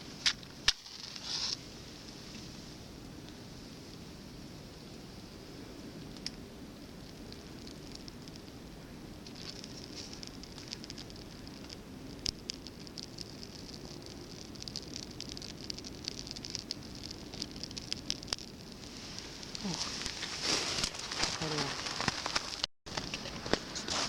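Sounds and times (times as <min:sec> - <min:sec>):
bark and wood chips crackling: 0:06.0 - 0:24.0.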